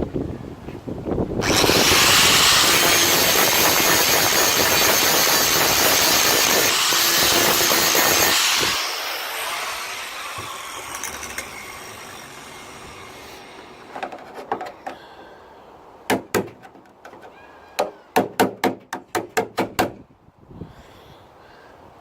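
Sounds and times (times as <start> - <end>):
power tool cutting sheet steel: 1.4 - 13.9.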